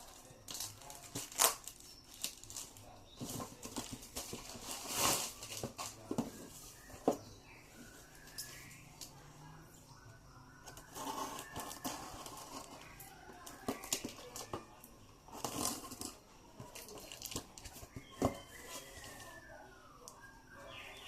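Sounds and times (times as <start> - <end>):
packaging tearing and crinkling: 0.0 - 6.0, 15.3 - 16.2.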